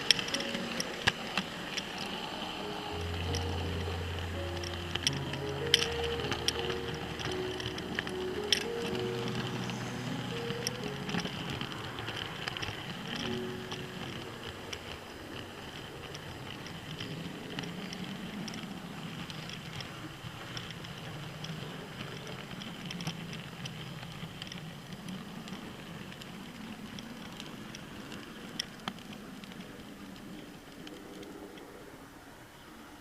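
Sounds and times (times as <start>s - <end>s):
sharp clicks: 0.0s - 19.9s
model train motor hum: 0.0s - 33.0s
small irregular clicks: 0.0s - 33.0s.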